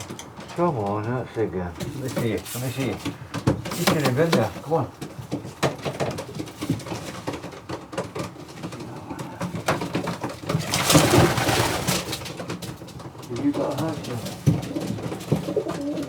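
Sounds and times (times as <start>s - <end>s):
clicks and shuffling: 0.0s - 16.0s
pigeons cooing: 1.7s - 16.0s
loud rustling burst: 10.6s - 12.2s.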